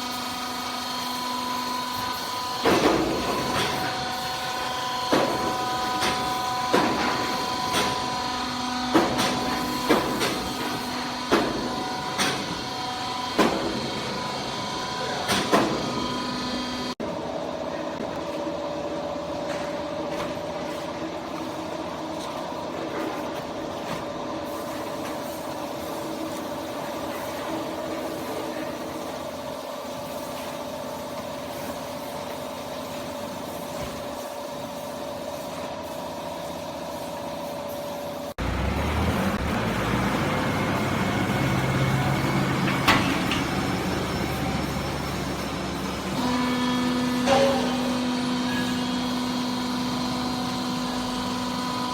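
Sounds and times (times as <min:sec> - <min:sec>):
hydraulic power unit humming: 0:00.0 - 0:34.6, 0:38.0 - 0:51.9
rough machine noise: 0:38.4 - 0:51.9.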